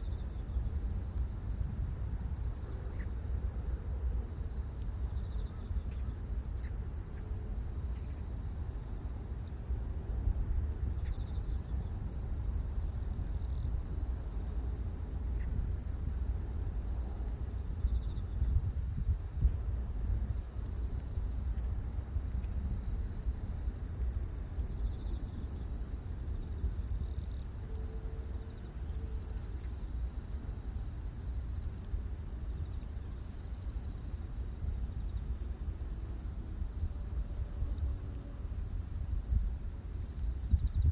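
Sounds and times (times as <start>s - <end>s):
cricket chirping in pulsed bursts: 0.0s - 40.9s.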